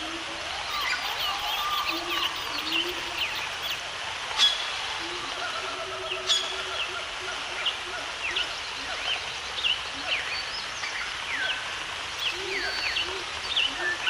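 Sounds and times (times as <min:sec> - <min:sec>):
background hiss: 0:00.0 - 0:14.0
birds chirping: 0:00.6 - 0:03.8, 0:12.2 - 0:14.0.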